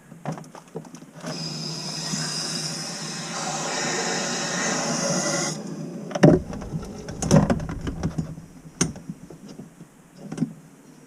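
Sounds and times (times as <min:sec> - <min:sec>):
sharp knocks and thumps: 0:06.2 - 0:09.7.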